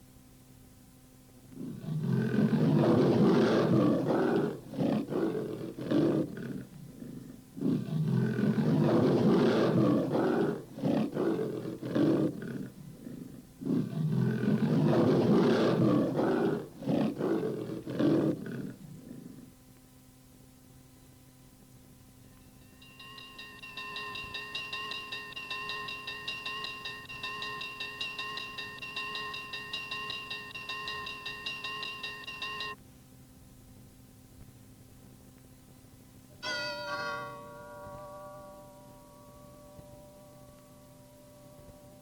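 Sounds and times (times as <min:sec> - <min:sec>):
big cat roaring and grunting: 0:01.5 - 0:19.5.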